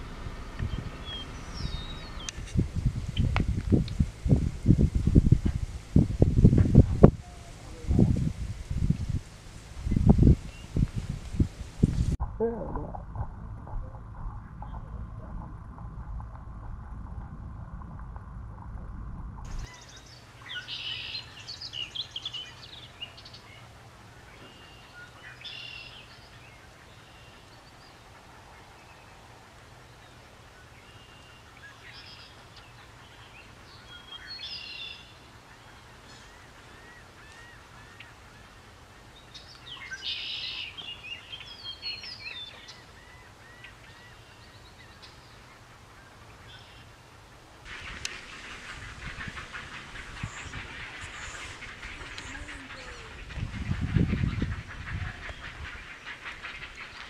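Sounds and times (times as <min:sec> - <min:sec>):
wild birds calling: 0:00.0 - 0:17.2, 0:19.4 - 0:57.0
steady low hum: 0:00.0 - 0:20.6.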